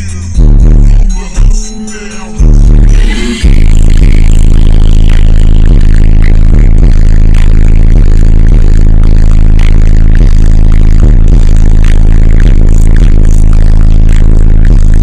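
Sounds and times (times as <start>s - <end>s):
loud distorted bass music: 0.0s - 15.0s.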